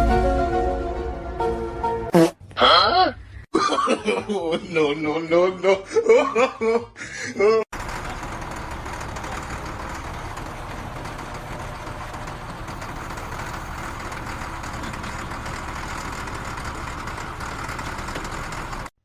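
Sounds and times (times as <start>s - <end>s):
engine-like rumble: 7.7s - 18.9s.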